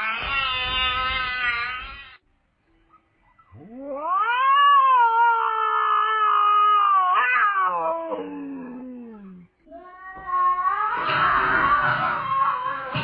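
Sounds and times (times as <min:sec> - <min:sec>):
cat yowling: 0:03.4 - 0:13.0.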